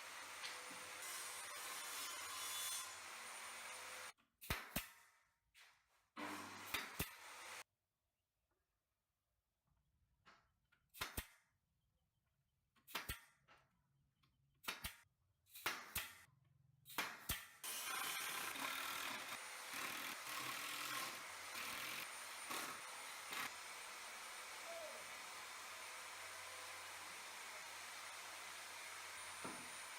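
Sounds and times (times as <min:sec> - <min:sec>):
wood and tools knocking: 0:29.4 - 0:29.7.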